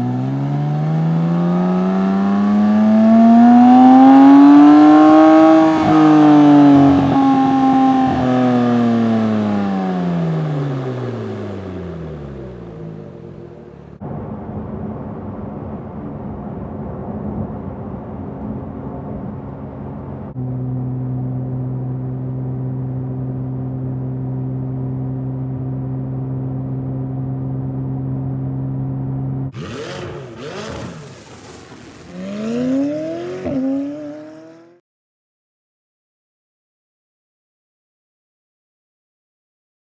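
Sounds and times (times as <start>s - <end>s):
car engine revving: 0.0s - 14.0s, 20.3s - 34.8s
car engine droning: 0.0s - 14.2s, 19.2s - 34.8s.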